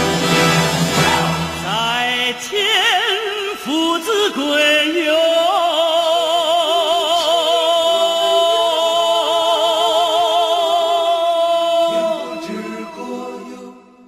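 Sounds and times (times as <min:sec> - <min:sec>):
instrumental accompaniment: 0:00.0 - 0:02.0.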